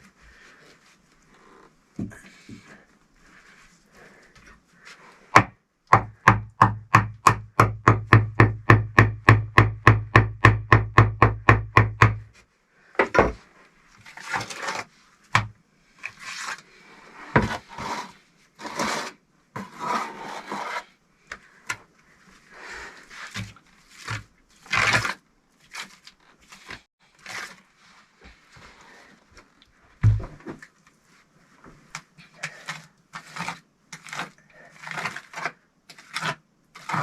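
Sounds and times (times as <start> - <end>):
scraping and rubbing: 13.9 - 15.3, 15.9 - 29.1, 31.0 - 37.0.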